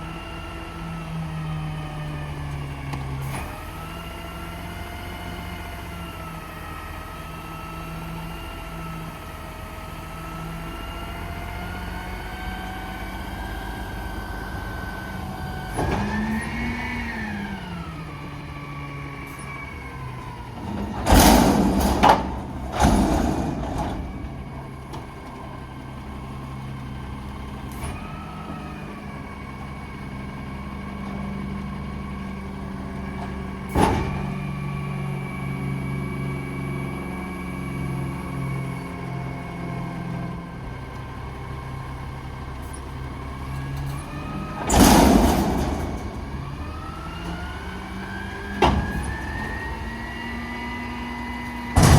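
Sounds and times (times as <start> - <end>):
garbage truck engine whining: 0.0 - 51.9
loud bangs: 20.7 - 25.2, 44.6 - 47.8.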